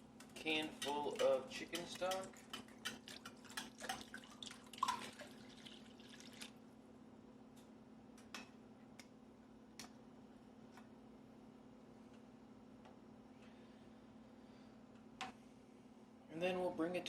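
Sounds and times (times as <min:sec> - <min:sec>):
low steady hum: 0:00.0 - 0:17.0
liquid splashing and dripping: 0:00.8 - 0:06.6.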